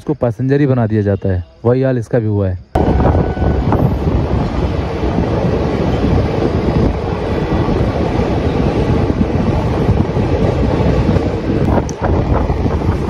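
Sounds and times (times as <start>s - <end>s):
wind buffeting microphone: 2.7s - 13.0s
train wheels rumbling on rails: 2.8s - 13.0s.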